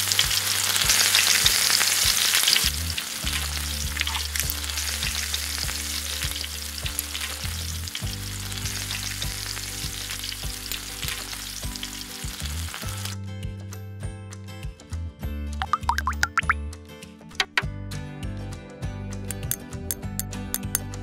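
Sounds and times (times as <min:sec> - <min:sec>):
food sizzling in frying pan: 0:00.0 - 0:13.2
soft background music: 0:00.0 - 0:21.0.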